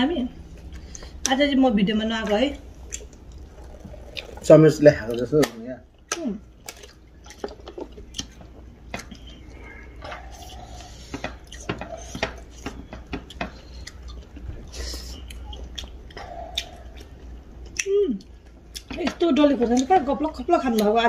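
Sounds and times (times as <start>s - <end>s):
chewing and mouth smacks: 0.4s - 1.4s, 2.8s - 21.0s.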